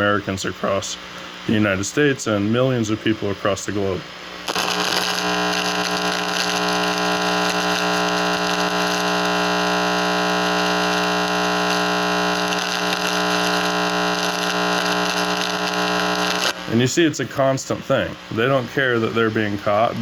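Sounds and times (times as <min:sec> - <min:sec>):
buzzing hum of fixed tones: 0:00.0 - 0:19.3
loud electronic hiss: 0:04.3 - 0:18.6.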